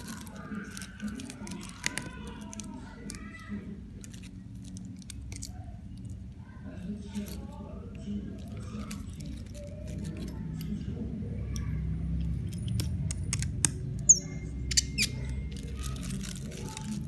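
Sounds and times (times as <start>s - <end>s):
hand tools clicking and scraping: 0.0s - 3.4s, 4.0s - 6.1s, 8.4s - 10.8s, 12.2s - 17.0s.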